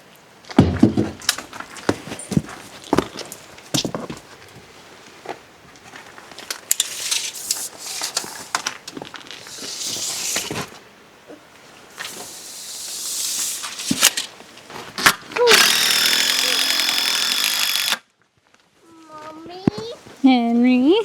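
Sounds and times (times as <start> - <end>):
rustling of materials: 0.4 - 10.9, 13.3 - 15.5, 18.2 - 21.0.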